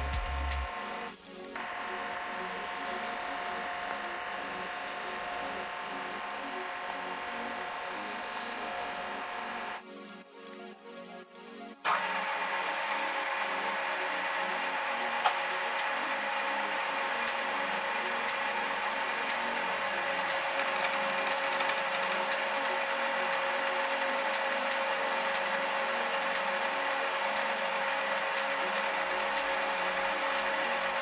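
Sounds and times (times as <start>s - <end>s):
machine tool whining: 0.0s - 9.8s, 11.9s - 31.0s.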